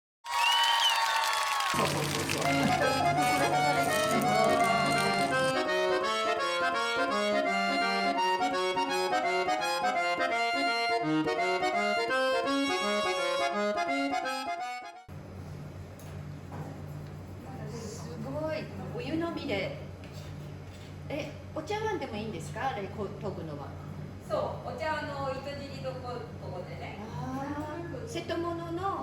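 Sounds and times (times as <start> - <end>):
lively melody: 1.8 - 15.1.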